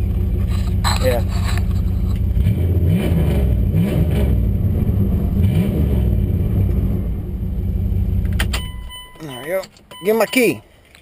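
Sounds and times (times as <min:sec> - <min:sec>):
car engine revving: 0:00.0 - 0:08.5.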